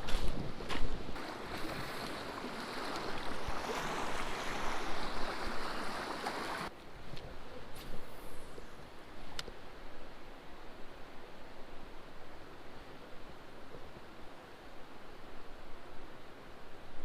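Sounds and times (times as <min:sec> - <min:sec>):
creek water rushing over rocks: 0:01.2 - 0:06.8.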